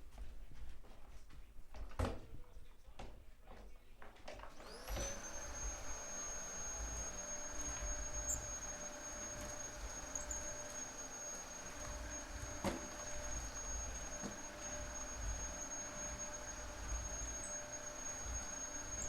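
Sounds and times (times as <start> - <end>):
vacuum cleaner whine: 4.3 - 19.0.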